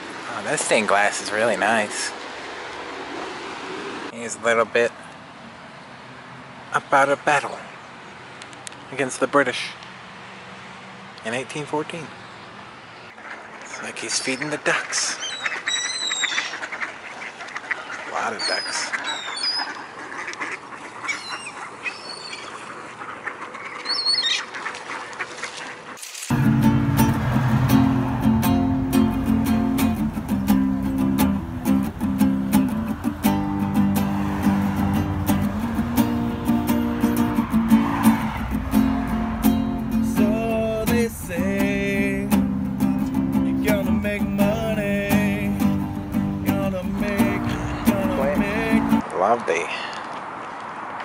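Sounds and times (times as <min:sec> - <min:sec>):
ducks quacking: 0:13.0 - 0:49.0
strummed acoustic guitar: 0:26.3 - 0:49.0.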